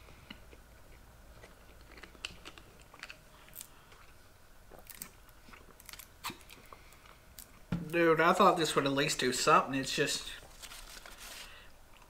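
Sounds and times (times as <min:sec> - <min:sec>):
people chewing: 0:00.0 - 0:07.6.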